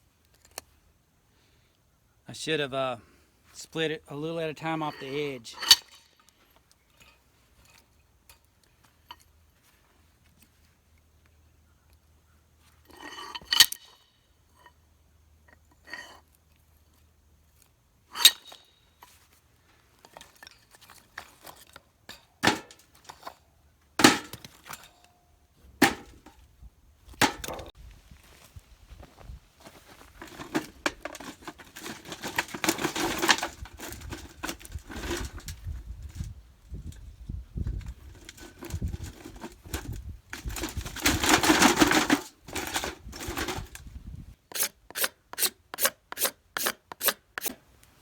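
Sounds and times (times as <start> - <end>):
scraping and rattling: 29.6 - 43.9.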